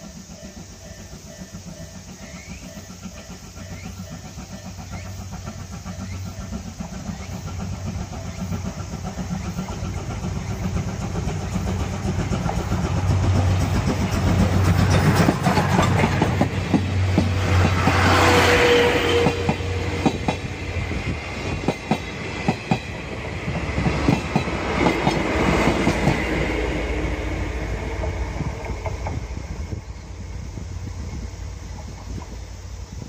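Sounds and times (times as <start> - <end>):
steam train passing: 0.0 - 33.0
wheels clicking over rail joints: 0.1 - 26.5.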